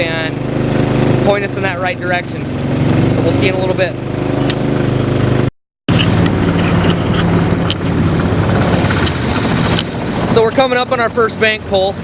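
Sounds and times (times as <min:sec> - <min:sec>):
boat engine running: 0:00.0 - 0:12.0
wind on microphone: 0:04.3 - 0:10.6.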